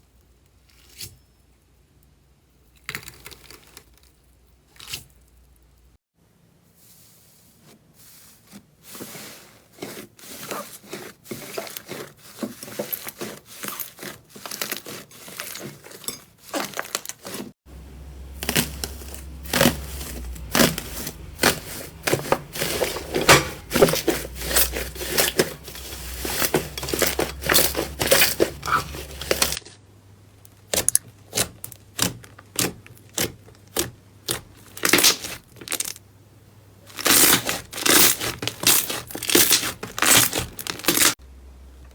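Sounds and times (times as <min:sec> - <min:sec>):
low hum: 0:17.7 - 0:30.2
hands squishing slime: 0:18.3 - 0:29.6, 0:30.6 - 0:36.0, 0:36.9 - 0:41.2.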